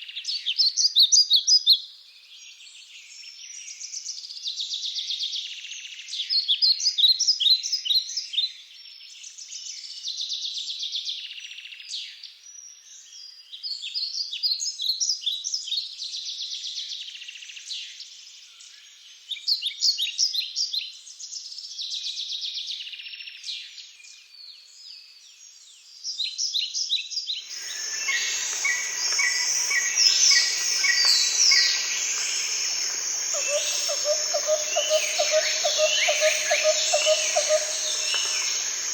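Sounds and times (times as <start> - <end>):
birds chirping and singing: 27.5 - 38.9.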